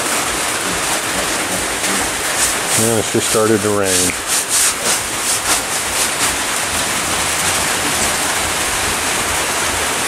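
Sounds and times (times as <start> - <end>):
steady rain hiss: 0.0 - 10.0
short scrapes or rustles: 1.9 - 6.4.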